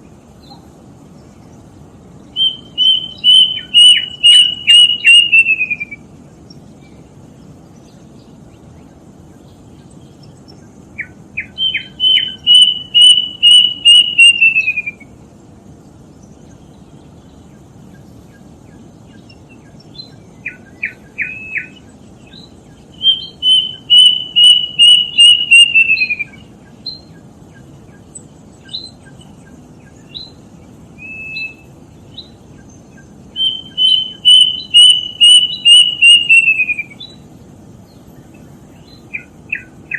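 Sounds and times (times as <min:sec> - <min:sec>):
steady low hiss: 0:00.0 - 0:39.9
cuckoo whistled song: 0:02.3 - 0:06.1, 0:11.0 - 0:15.2, 0:19.2 - 0:27.2, 0:28.6 - 0:30.4, 0:31.0 - 0:32.3, 0:33.0 - 0:37.2.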